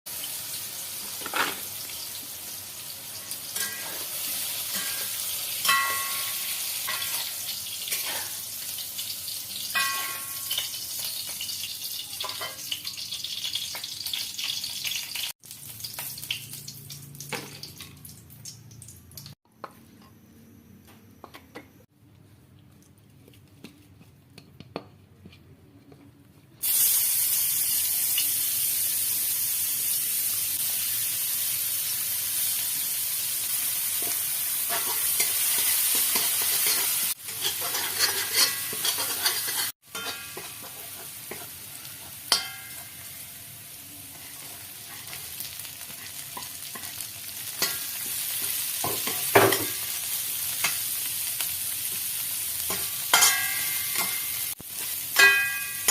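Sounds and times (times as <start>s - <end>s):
food sizzling in hot oil: 0.1s - 19.4s, 26.6s - 55.9s
utensil clinking against pan: 36.1s - 41.4s, 42.3s - 42.9s, 52.7s - 54.3s, 55.2s - 55.9s.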